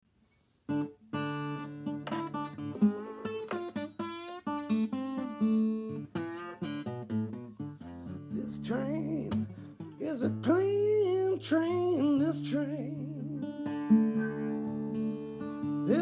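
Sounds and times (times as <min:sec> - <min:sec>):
slide acoustic guitar playing: 0:00.7 - 0:16.0.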